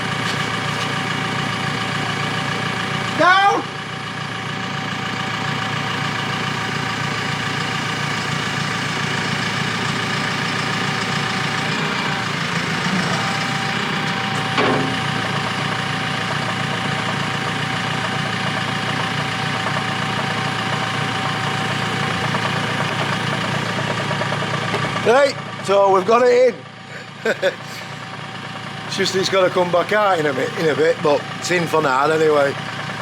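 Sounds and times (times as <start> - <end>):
forklift engine idling: 0.0 - 33.0.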